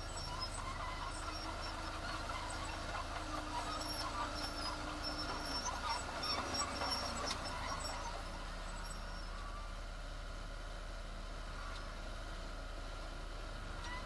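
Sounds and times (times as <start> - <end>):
clinks and short squeaks: 0.0 - 9.7, 13.8 - 14.0
diesel machinery running: 0.0 - 14.0.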